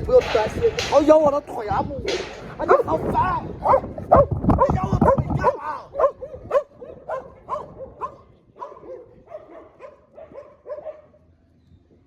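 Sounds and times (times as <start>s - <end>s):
dogs barking and yipping: 2.6s - 3.0s, 3.6s - 11.3s.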